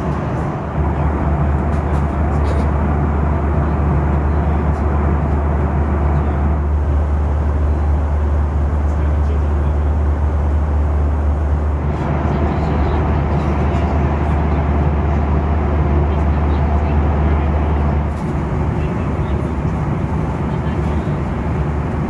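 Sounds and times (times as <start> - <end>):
airplane cabin rumble and drone: 0.0 - 22.0.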